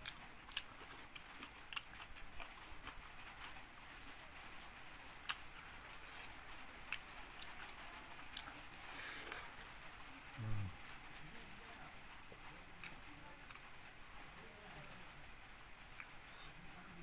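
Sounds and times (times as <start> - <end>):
chewing mouth clicks and smacks: 0.0 - 3.6, 5.2 - 8.6
steady hiss: 0.0 - 17.0
low grunt: 10.4 - 10.8.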